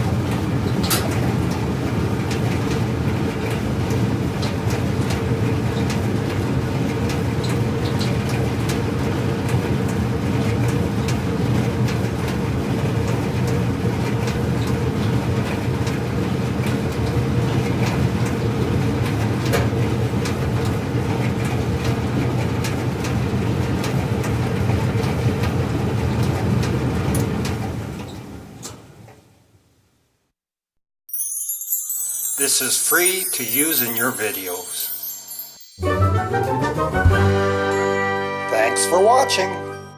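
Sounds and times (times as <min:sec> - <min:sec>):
clothes dryer drum rumbling: 0:00.0 - 0:29.1.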